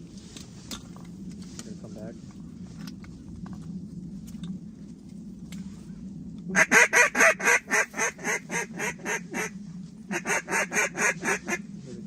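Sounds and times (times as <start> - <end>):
duck call quacks: 6.6 - 9.5, 10.1 - 11.6.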